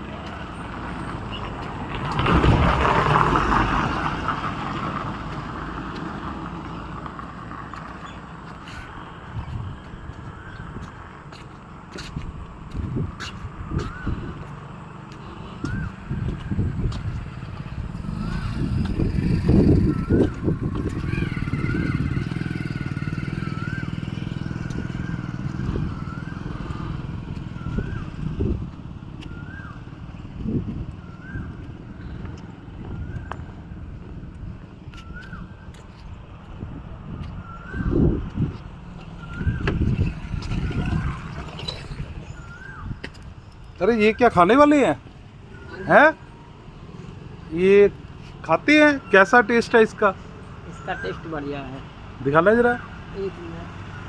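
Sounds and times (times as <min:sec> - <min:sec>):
vehicle passing by: 0:00.0 - 0:54.0
vehicle engine running: 0:14.4 - 0:34.7.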